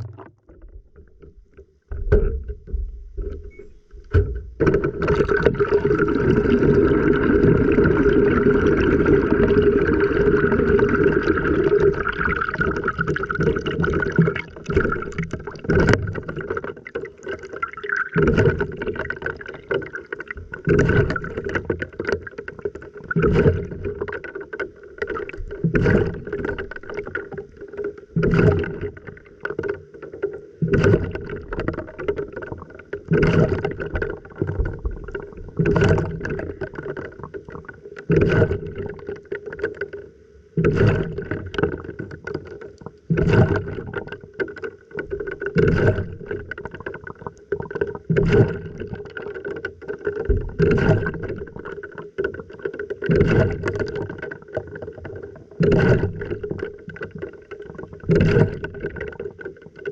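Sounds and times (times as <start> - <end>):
water sloshing in washing machine: 4.2 - 24.2, 43.1 - 44.2, 57.7 - 59.2.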